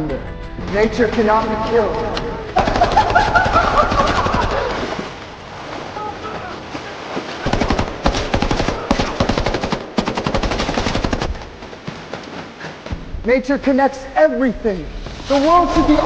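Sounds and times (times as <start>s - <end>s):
automatic gunfire: 2.6s - 4.6s, 7.4s - 11.6s.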